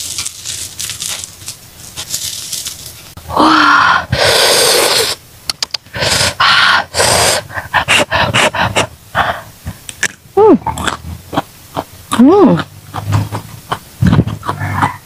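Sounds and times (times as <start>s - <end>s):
person blowing on food: 3.3s - 5.2s, 5.9s - 7.5s
clicky mouth sounds: 5.5s - 6.2s, 9.7s - 15.0s.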